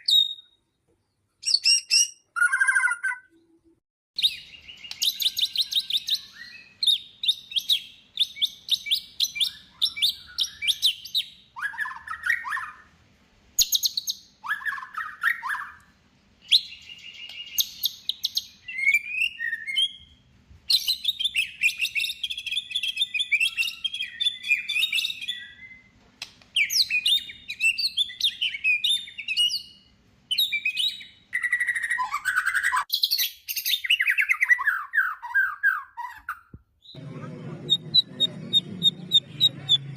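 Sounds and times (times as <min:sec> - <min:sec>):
bird singing chirps and trills: 0:04.2 - 0:12.8, 0:20.8 - 0:25.9, 0:26.6 - 0:36.1.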